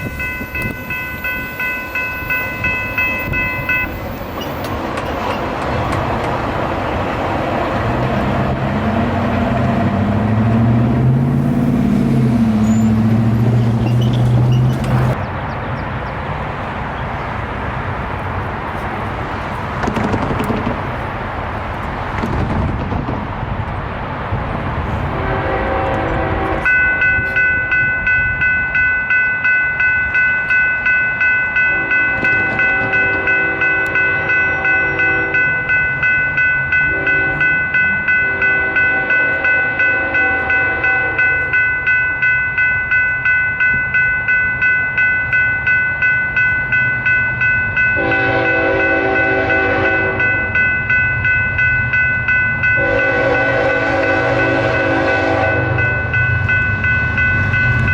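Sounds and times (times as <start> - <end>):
crossing warning bell ringing: 0.0 - 7.4, 10.5 - 21.2, 25.0 - 57.9
passing train rumble: 0.0 - 57.9
train air horn blasts: 25.0 - 27.6, 31.7 - 35.6, 36.9 - 37.6, 38.2 - 41.4, 48.0 - 50.6, 52.8 - 56.2.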